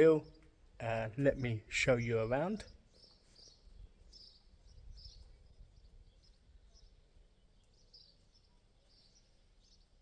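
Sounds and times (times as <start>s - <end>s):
faint birdsong: 0.0s - 10.0s.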